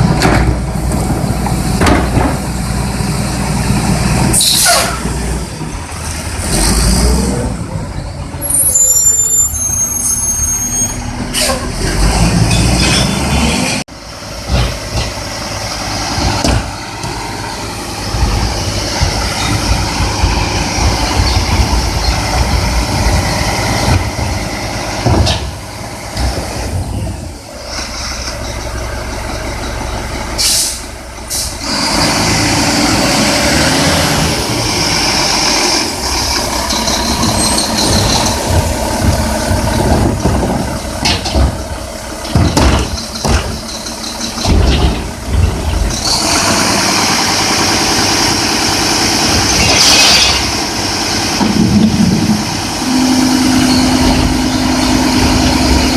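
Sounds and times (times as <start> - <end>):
knocks and clanks: 0.0 - 2.6, 14.4 - 15.3, 16.1 - 17.2, 18.0 - 27.3, 36.4 - 46.7, 51.3 - 52.6
diesel engine running: 0.0 - 55.9
air brake hiss: 30.4 - 31.6.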